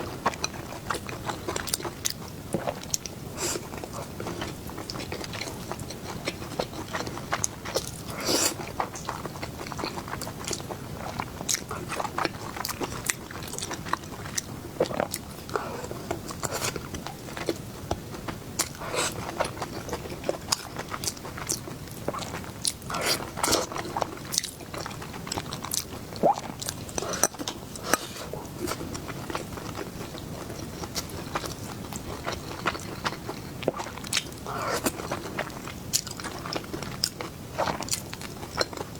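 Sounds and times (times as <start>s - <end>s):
person chewing crunchy food: 0.1s - 38.9s.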